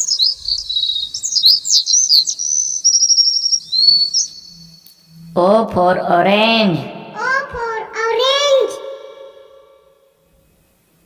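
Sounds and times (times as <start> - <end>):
songbird chirping and trilling: 0.0 - 5.3, 6.9 - 10.1.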